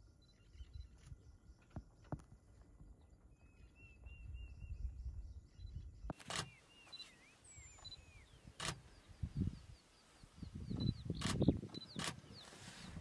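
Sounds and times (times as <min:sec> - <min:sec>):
small birds chirping: 0:00.0 - 0:13.0
wind rumble on microphone: 0:02.8 - 0:06.2, 0:07.4 - 0:13.0
sharp click: 0:06.1 - 0:06.6, 0:08.6 - 0:08.8.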